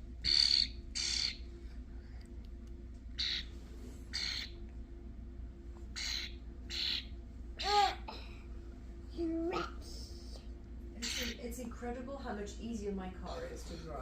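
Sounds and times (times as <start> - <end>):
young starling begging calls: 0.2 - 1.4, 3.2 - 3.5, 4.1 - 4.6, 6.0 - 7.1, 11.0 - 11.5.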